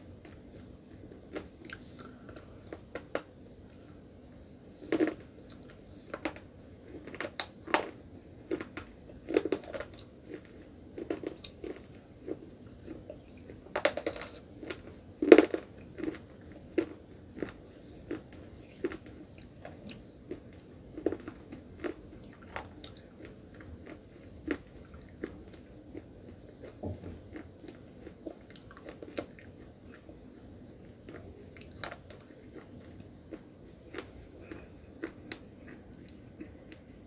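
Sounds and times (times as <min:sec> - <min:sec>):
chewing: 0:01.2 - 0:03.9, 0:14.2 - 0:36.9.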